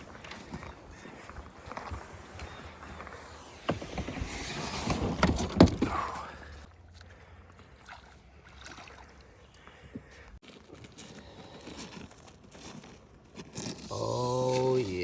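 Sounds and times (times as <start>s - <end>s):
paddle strokes splashing: 0.0s - 10.0s
water: 5.0s - 10.5s.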